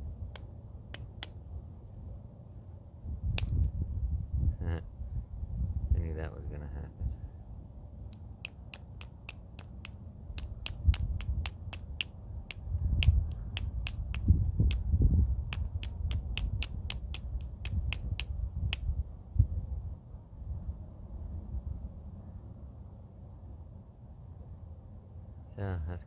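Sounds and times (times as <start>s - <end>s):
sharp clicks of stone tapping: 0.4s - 1.4s, 3.4s - 3.8s, 8.1s - 14.9s, 15.5s - 18.9s.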